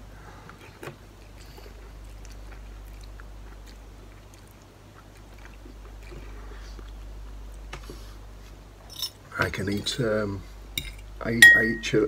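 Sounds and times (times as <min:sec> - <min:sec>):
person chewing noodles: 0:00.5 - 0:07.1
steady low hum: 0:09.9 - 0:12.0.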